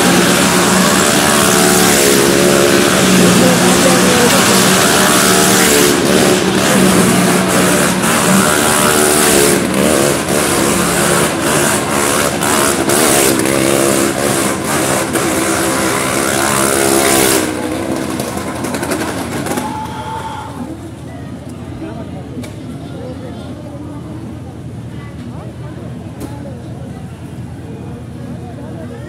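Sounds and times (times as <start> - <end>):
car engine revving hard: 0.0 - 19.6.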